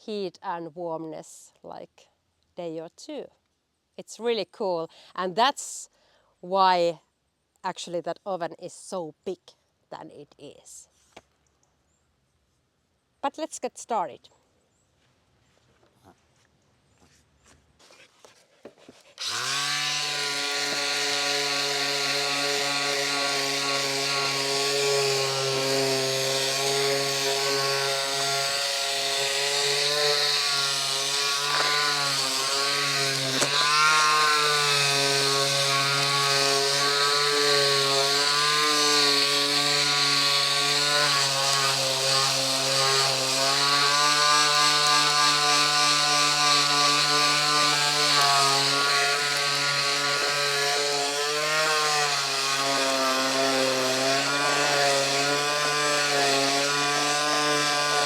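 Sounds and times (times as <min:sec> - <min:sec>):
power tool motor running: 0:19.2 - 0:58.0.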